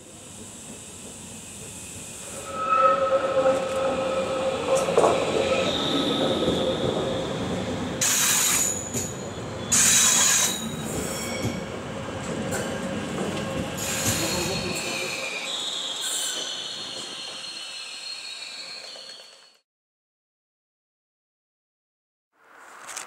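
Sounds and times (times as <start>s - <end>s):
train wheels squealing: 0.5s - 11.8s, 12.5s - 19.6s.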